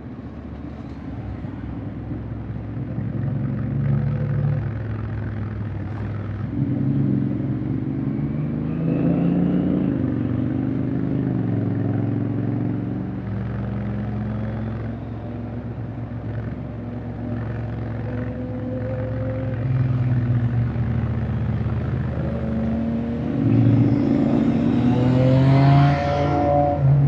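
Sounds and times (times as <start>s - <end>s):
motorcycle engine revving: 18.0s - 27.0s.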